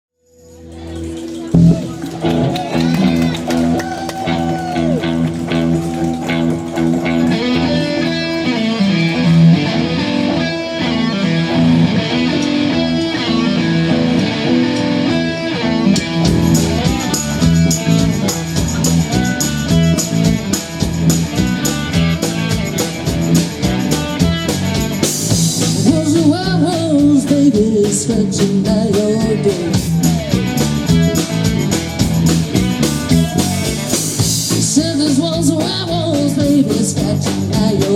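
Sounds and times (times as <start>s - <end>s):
blues rock guitar: 0.5s - 37.9s
drum beat with cymbals: 16.2s - 37.9s.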